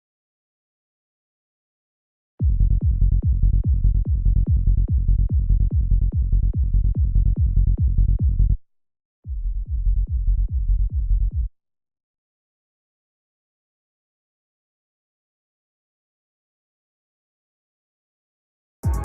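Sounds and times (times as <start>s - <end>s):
kick drum: 2.4s - 8.6s, 9.3s - 11.5s
rolling bass synth: 2.4s - 8.6s.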